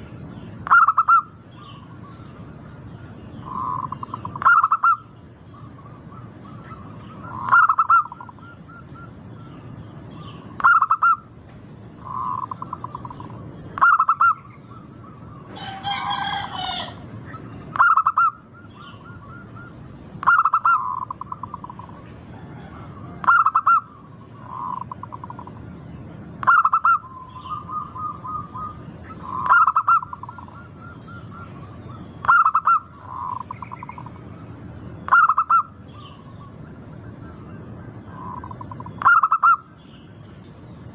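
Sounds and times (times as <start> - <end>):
dove stuttering coos: 3.4 - 9.2, 12.0 - 25.7, 26.4 - 34.5.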